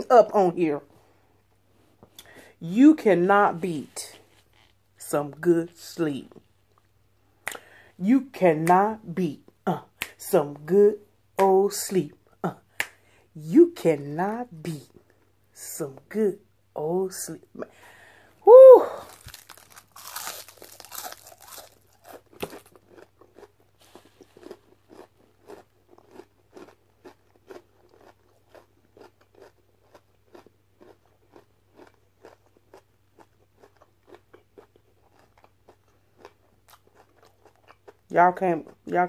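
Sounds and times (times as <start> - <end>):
crunchy food being chewed: 19.0 - 38.9.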